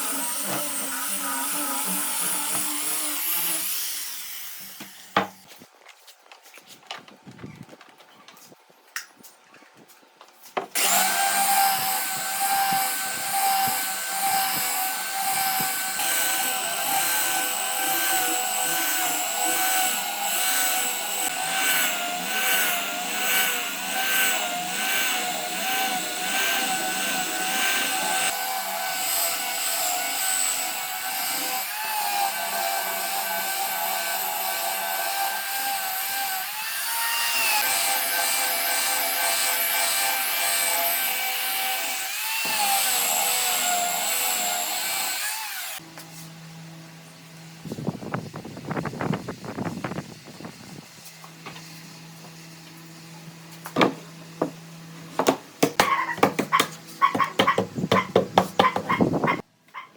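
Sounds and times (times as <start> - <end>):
power tool whining on wood: 0.0 - 5.4, 10.7 - 54.8.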